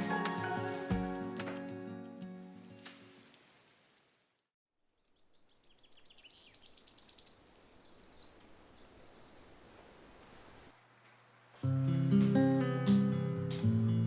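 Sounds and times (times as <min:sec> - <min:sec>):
bird singing a fast trill: 0:04.9 - 0:09.2.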